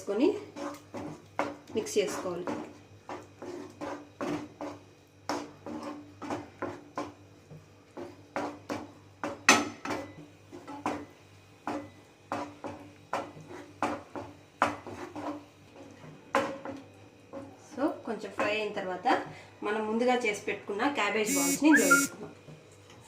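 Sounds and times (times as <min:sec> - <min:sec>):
spoon scraping a pan: 0:03.1 - 0:06.8.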